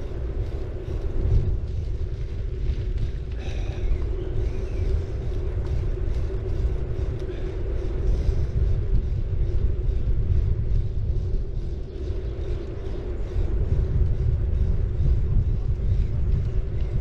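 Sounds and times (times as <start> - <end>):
bicycle tyres rolling on road: 0.0 - 17.0
steady low hum: 0.0 - 17.0
wind rumble on microphone: 0.0 - 17.0.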